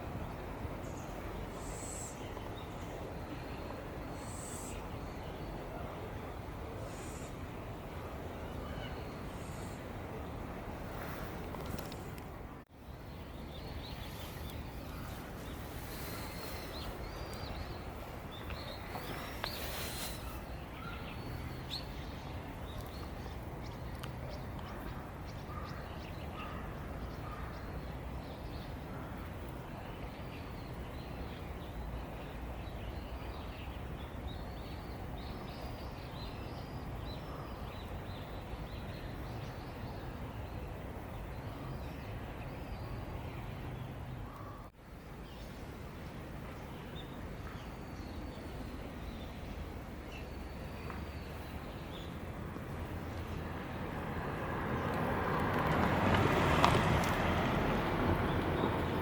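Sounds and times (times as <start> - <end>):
background hiss and rumble: 0.0 - 59.0
small birds chirping: 11.0 - 45.6.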